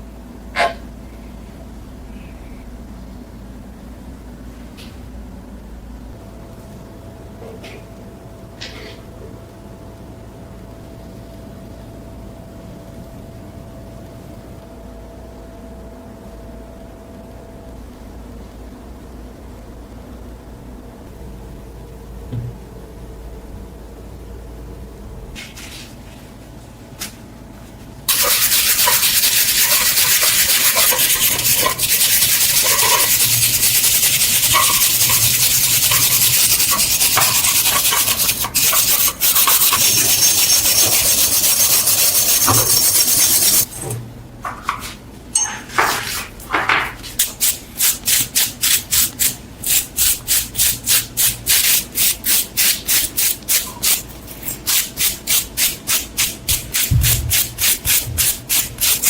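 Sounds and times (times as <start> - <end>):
back-and-forth sanding strokes: 28.1 - 43.7, 51.5 - 59.0
loud harsh sanding hiss: 28.1 - 43.7, 47.2 - 59.0.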